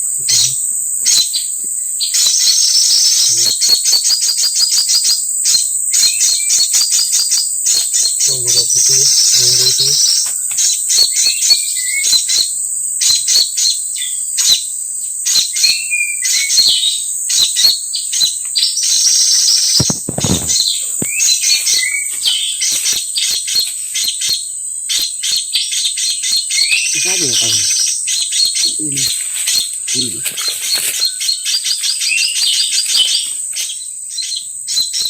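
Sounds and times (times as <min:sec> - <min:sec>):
high-pitched insect drone: 0:00.0 - 0:35.0
small birds chirping: 0:00.0 - 0:35.0.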